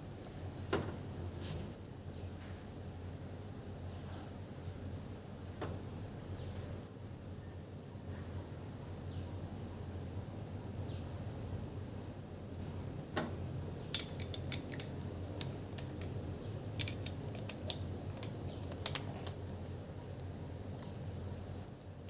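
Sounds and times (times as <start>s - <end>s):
steady low hum: 8.6s - 21.8s
small metal objects clinking: 13.9s - 19.4s.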